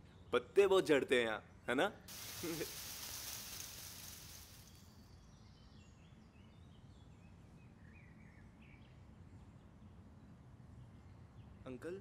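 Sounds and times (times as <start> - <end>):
faint hiss: 2.1 - 5.0.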